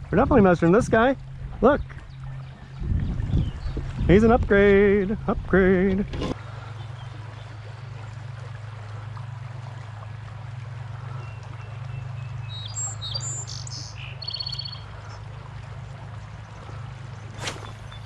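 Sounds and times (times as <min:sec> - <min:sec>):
steady low hum: 0:00.0 - 0:18.0
songbird chirping: 0:11.2 - 0:15.2.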